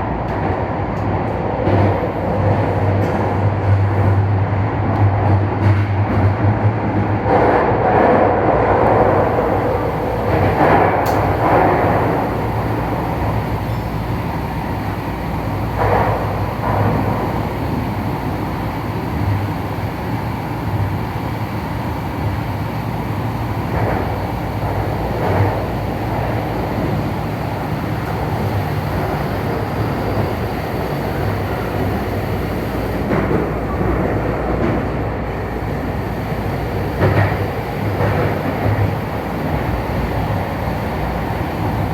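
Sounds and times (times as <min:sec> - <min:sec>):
train rattles: 0:00.0 - 0:41.9
train wheels rumbling on rail: 0:00.0 - 0:41.9
low motor hum: 0:08.6 - 0:41.9.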